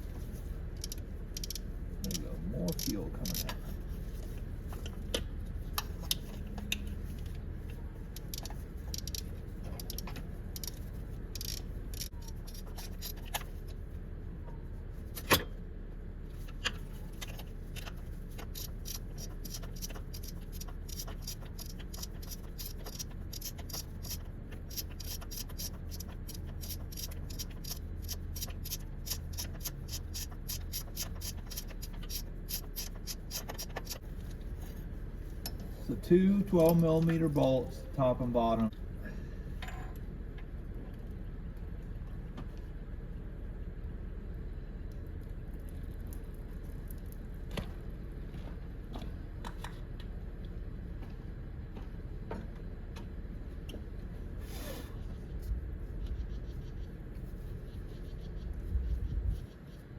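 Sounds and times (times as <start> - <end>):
low steady hum: 0.0 - 59.9
socket ratchet clicking: 0.8 - 3.5, 8.2 - 10.8, 11.4 - 13.4, 18.4 - 34.0.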